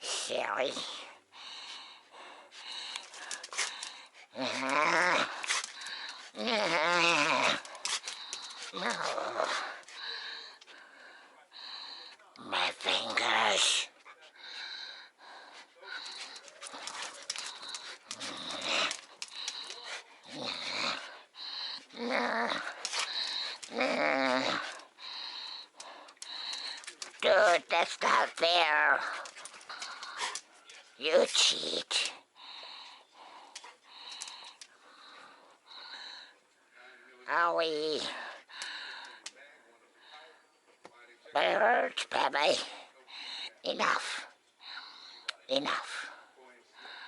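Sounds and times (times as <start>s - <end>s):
dog growling: 0.4s - 36.3s.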